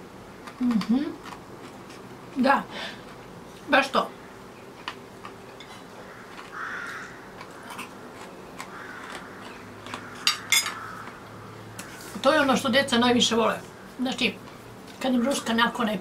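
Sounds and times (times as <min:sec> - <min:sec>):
quiet chewing: 0:00.4 - 0:02.4, 0:04.6 - 0:12.2.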